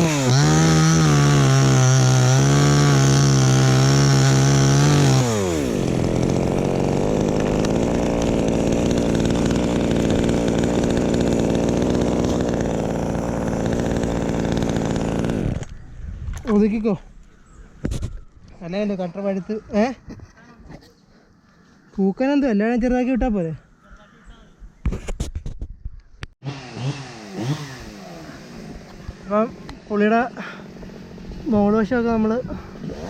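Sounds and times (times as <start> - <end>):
chainsaw revving: 0.0 - 15.7, 26.4 - 33.0.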